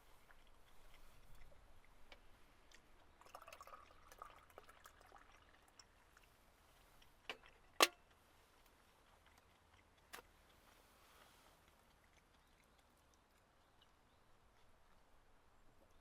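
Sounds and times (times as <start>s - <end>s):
liquid pouring: 0.0s - 7.9s
light drips: 0.0s - 16.0s.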